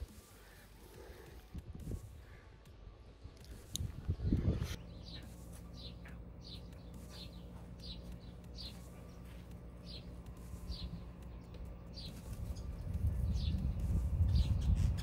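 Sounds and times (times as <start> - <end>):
steady low hum: 0.0 - 15.0
bird chirping: 4.7 - 15.0.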